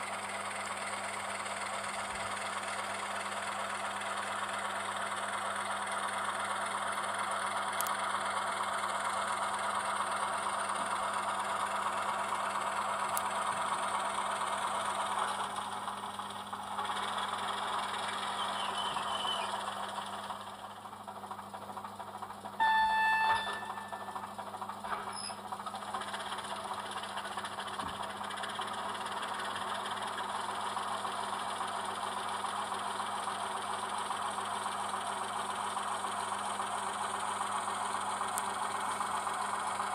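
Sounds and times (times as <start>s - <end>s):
model locomotive running sound: 0.0s - 39.9s
locomotive signal blast: 22.6s - 24.4s.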